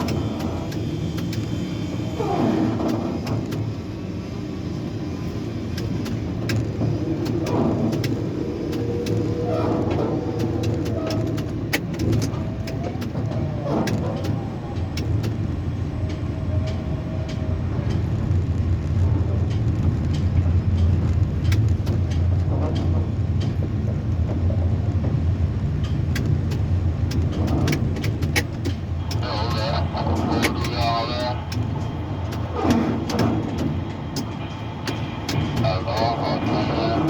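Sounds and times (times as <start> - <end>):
low mechanical drone: 0.0 - 37.0.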